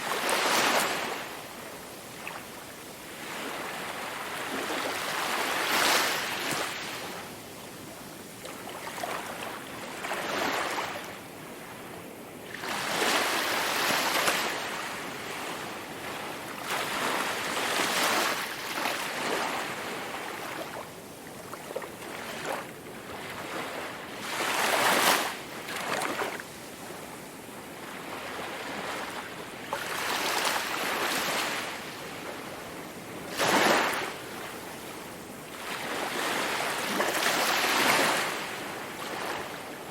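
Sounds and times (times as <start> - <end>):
sea waves breaking on shore: 0.0 - 1.5, 3.1 - 7.2, 12.5 - 20.8, 27.8 - 39.9.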